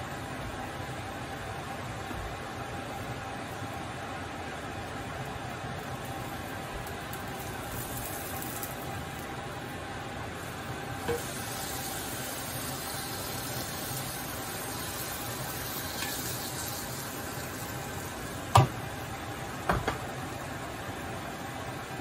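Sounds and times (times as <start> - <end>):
food sizzling in frying pan: 0.1 - 22.0
plate knocking on pan: 18.5 - 18.8, 19.7 - 20.0.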